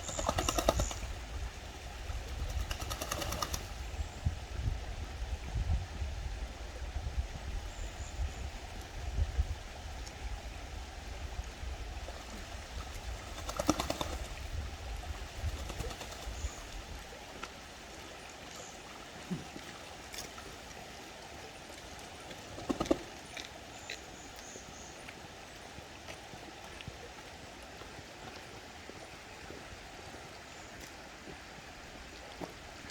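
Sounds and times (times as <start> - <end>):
small birds chirping: 0.0 - 1.2
duck splashing and wingbeats: 0.0 - 3.9, 12.0 - 18.5, 21.7 - 23.6
flowing water rushing: 9.9 - 32.9.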